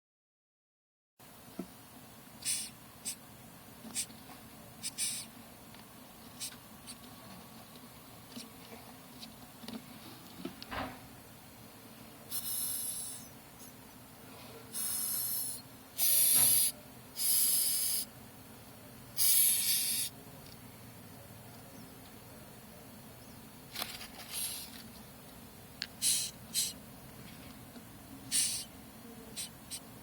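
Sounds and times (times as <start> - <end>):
cockroaches hissing: 2.4 - 3.2, 3.9 - 4.2, 4.8 - 5.4, 6.4 - 7.0, 12.3 - 13.8, 14.7 - 18.2, 19.2 - 20.2, 24.2 - 24.9, 26.0 - 26.8, 28.3 - 30.0.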